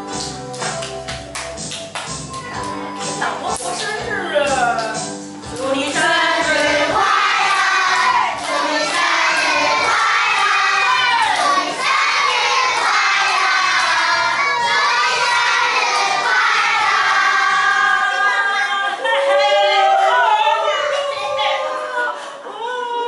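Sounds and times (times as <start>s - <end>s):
children shouting and singing: 7.1s - 23.0s.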